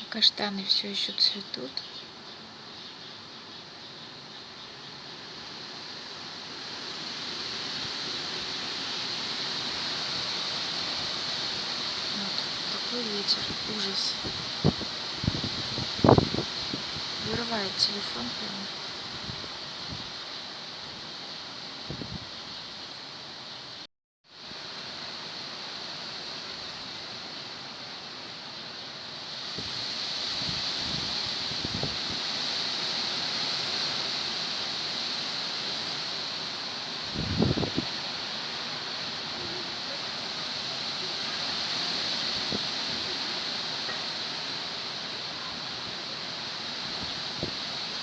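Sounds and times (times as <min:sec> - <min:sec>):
strong wind blowing: 0:06.9 - 0:20.2, 0:21.8 - 0:22.4, 0:29.5 - 0:32.6, 0:37.0 - 0:38.4, 0:46.8 - 0:48.0.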